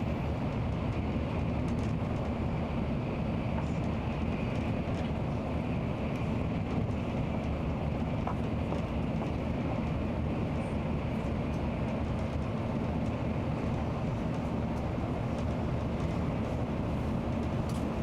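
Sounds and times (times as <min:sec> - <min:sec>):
bullet train rumbling with hiss: 0:00.0 - 0:18.0.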